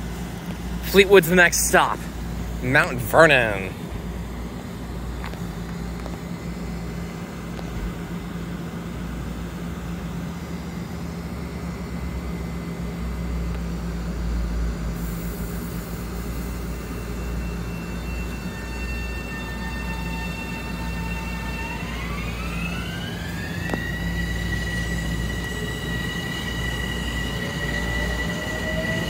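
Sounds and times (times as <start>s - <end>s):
thin high whine: 0.0s - 7.7s, 15.0s - 29.0s
electric train motor hum: 0.0s - 29.0s.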